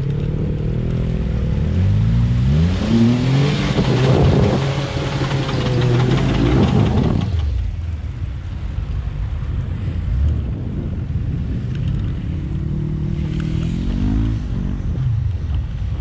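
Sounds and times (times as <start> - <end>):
car engine revving hard: 1.8 - 7.6
tyres churning dirt: 2.6 - 7.8.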